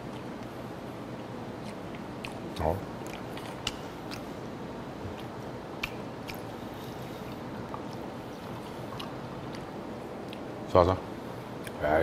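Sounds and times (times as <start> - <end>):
quiet chewing: 0.0 - 0.6, 1.6 - 10.5.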